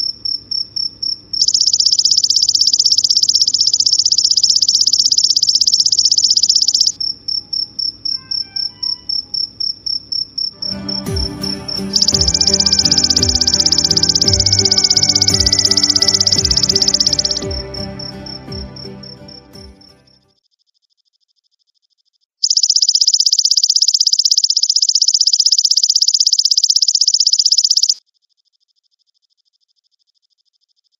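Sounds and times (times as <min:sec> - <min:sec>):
cricket trilling and chirping: 0:00.0 - 0:10.5, 0:22.4 - 0:30.9
faint pulsing insect call: 0:01.3 - 0:10.5, 0:22.4 - 0:28.0
music with thumping beat: 0:10.6 - 0:19.9.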